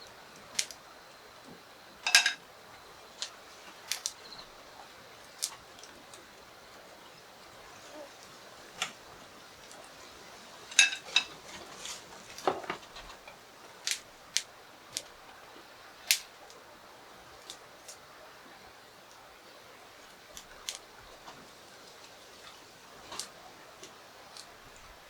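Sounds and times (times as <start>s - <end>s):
utensils and tableware clicking: 2.0s - 2.4s, 10.7s - 11.5s.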